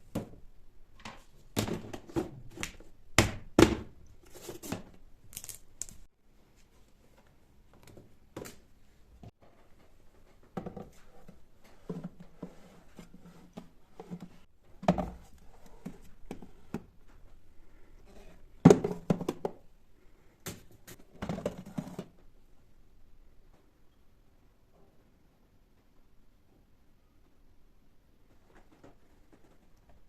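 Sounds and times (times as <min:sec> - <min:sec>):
household items knocking and clattering: 0:09.3 - 0:16.9, 0:18.6 - 0:19.6.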